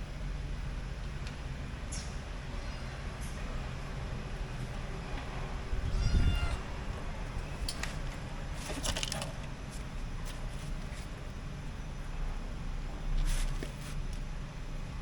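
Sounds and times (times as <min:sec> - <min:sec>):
kitten meowing: 0:02.5 - 0:03.0, 0:05.7 - 0:06.7
scratchy rustles: 0:13.2 - 0:14.0.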